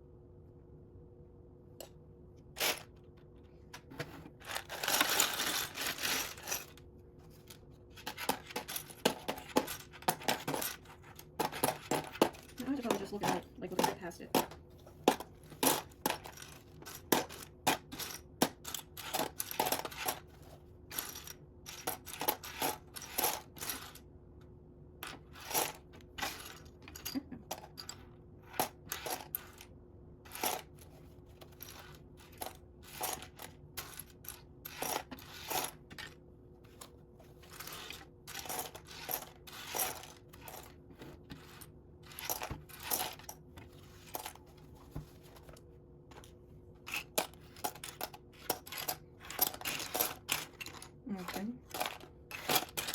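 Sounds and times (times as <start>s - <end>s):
plastic bricks clattering: 3.8s - 6.8s, 46.9s - 52.9s.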